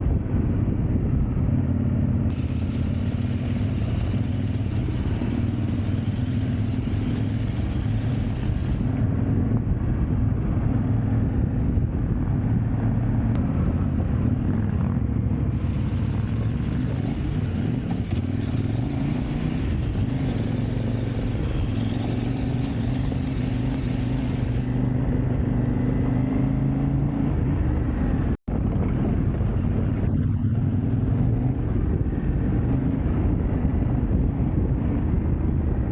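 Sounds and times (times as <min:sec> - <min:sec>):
motorcycle engine running: 0:00.1 - 0:26.6.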